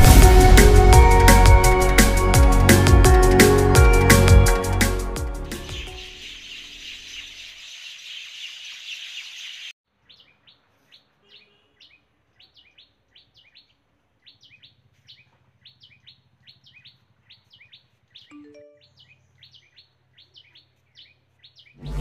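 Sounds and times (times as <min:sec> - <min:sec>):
bird chirping: 0:05.4 - 0:22.0.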